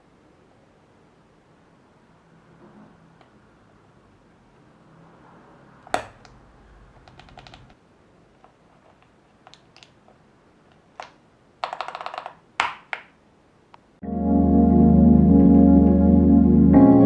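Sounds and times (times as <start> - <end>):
plastic keyboard parts clicking: 5.9 - 7.8, 8.4 - 13.2.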